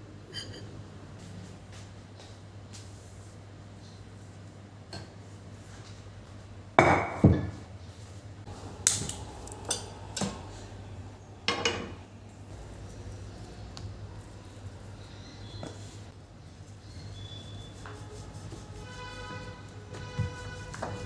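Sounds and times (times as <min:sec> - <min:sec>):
kitchenware knocking and clinking: 0:06.8 - 0:07.6, 0:11.5 - 0:12.0
steady low hum: 0:07.9 - 0:20.7.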